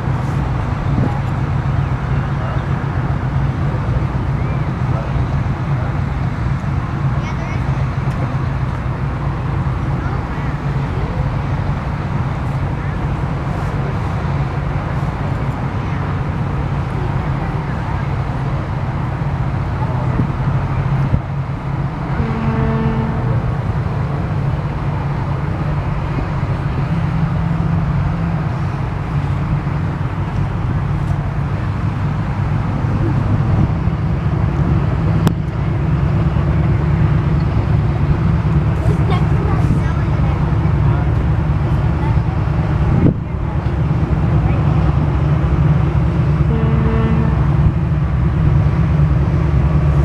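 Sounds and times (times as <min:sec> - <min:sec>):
low engine rumble: 0:00.0 - 0:50.0
short horn note: 0:22.2 - 0:23.4, 0:46.5 - 0:47.5.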